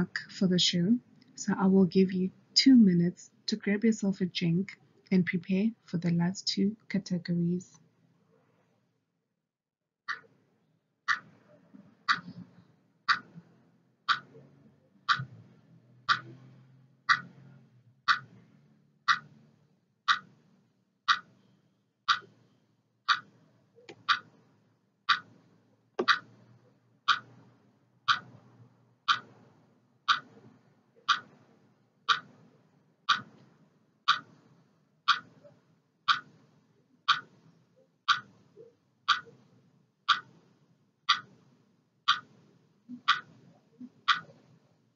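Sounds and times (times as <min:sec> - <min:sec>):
clock ticking: 0:10.1 - 0:10.3, 0:11.1 - 0:11.4, 0:12.1 - 0:12.5, 0:13.1 - 0:13.5, 0:14.1 - 0:17.5, 0:18.1 - 0:18.5, 0:19.1 - 0:19.5, 0:20.1 - 0:20.5, 0:21.1 - 0:21.5, 0:22.1 - 0:24.5, 0:25.1 - 0:26.4, 0:27.1 - 0:29.5, 0:30.1 - 0:31.5, 0:32.1 - 0:32.5, 0:33.1 - 0:39.5, 0:40.1 - 0:41.5, 0:42.1 - 0:44.7.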